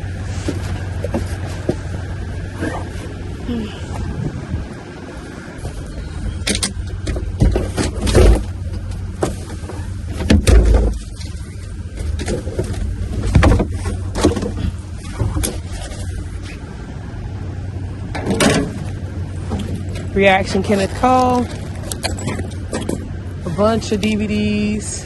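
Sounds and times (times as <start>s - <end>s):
low rumble: 0.0s - 25.0s
items rummaged and clattering: 5.5s - 16.7s, 18.1s - 23.4s.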